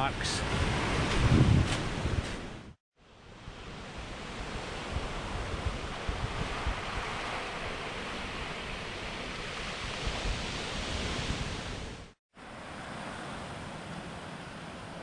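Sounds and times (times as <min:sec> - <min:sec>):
ocean surf on rocky shore: 0:00.0 - 0:15.0.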